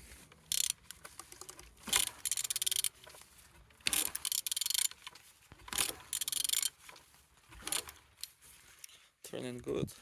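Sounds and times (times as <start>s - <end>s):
ratchet wrench clicking: 0.5s - 3.0s, 3.8s - 5.1s, 5.7s - 6.8s.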